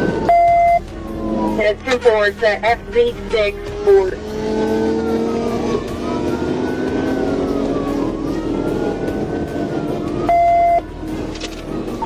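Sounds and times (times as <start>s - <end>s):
low drone: 0.0s - 12.0s
police siren wailing: 0.0s - 12.0s
loud steady beep: 0.2s - 0.8s, 10.3s - 10.8s.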